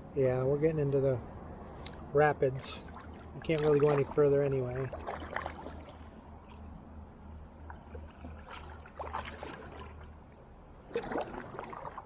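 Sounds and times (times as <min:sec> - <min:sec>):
low steady rumble: 0:00.0 - 0:12.0
water running over shallows: 0:02.2 - 0:06.2, 0:07.6 - 0:12.0
paddle splashes: 0:02.7 - 0:06.6, 0:07.6 - 0:12.0.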